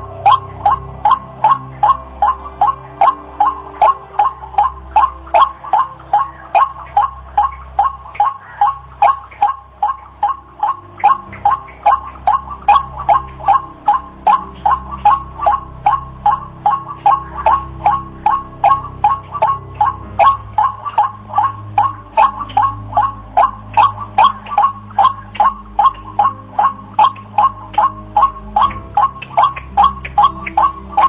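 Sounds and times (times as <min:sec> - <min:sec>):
waterhen calling: 0:00.0 - 0:31.0.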